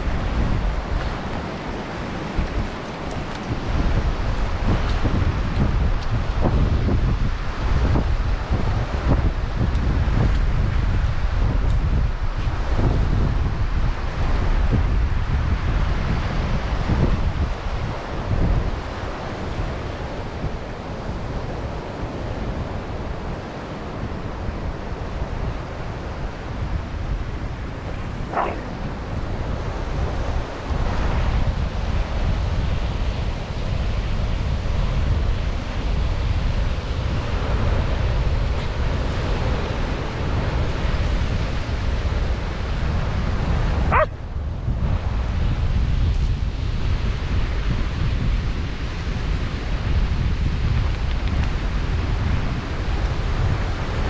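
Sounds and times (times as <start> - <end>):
ocean surf washing: 0.0 - 10.1, 12.2 - 32.1
wind buffeting microphone: 0.0 - 54.0.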